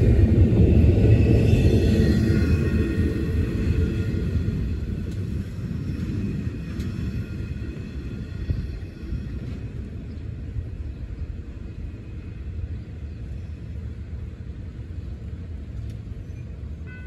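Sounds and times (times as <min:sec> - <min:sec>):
freight train rumbling: 0:00.0 - 0:17.0.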